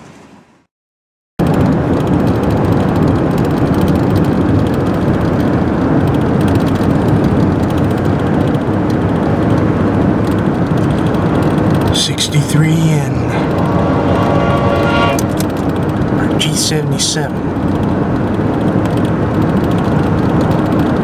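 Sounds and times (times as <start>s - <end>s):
vehicle rumbling roar: 9.7s - 19.3s
low hum: 10.8s - 18.0s.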